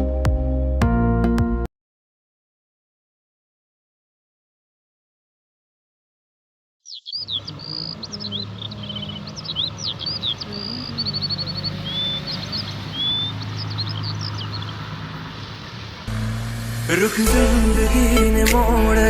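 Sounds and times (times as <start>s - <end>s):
birds chirping and whistling: 6.8s - 16.1s
steady low hum: 16.1s - 18.9s.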